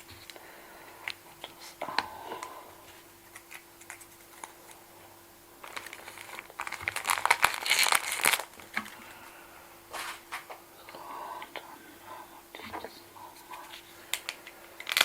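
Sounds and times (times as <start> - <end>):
objects clicking and crinkling: 5.6 - 9.0, 13.5 - 15.0.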